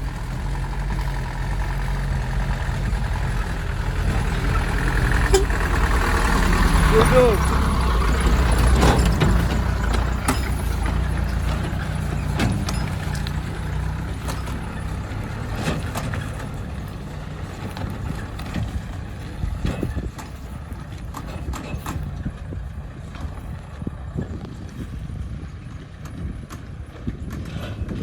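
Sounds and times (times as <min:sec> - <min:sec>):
truck engine running: 0:00.0 - 0:28.0
sharp knocks and clicks: 0:03.4 - 0:22.5.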